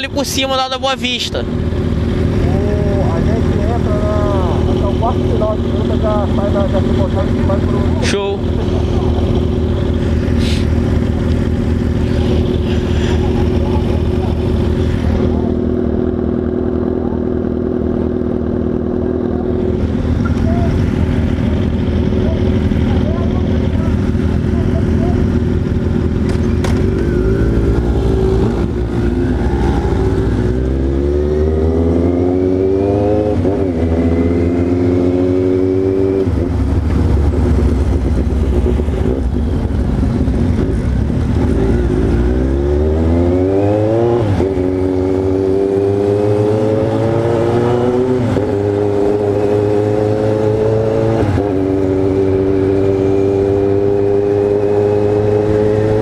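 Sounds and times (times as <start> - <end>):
motorcycle engine revving through gears: 1.4 - 56.0.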